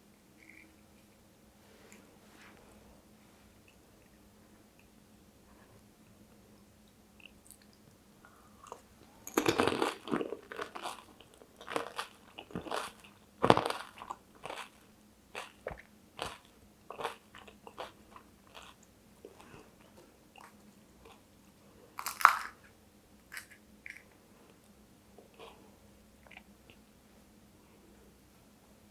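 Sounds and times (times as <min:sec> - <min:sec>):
crisp shells crunching when chewed: 0:08.6 - 0:19.4, 0:22.0 - 0:22.7, 0:23.3 - 0:24.1.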